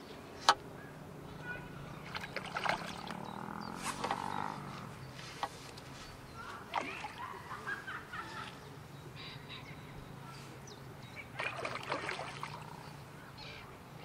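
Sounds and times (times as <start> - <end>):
birds calling: 0.0 - 14.0
low outdoor background: 0.0 - 14.0.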